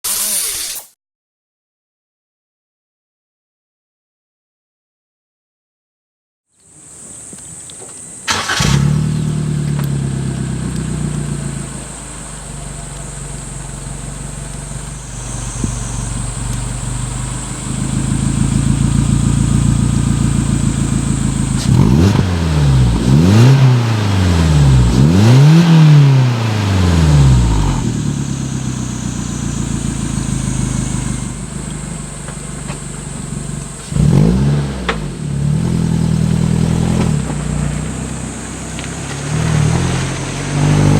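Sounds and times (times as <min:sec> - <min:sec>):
car engine idling: 0:06.7 - 0:40.9
car engine starting: 0:06.7 - 0:40.9
car engine revving: 0:08.2 - 0:40.9.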